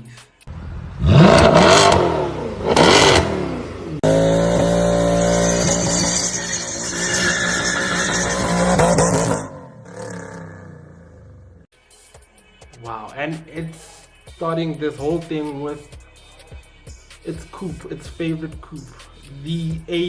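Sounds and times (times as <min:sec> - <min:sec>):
car engine revving hard: 0:00.5 - 0:11.6.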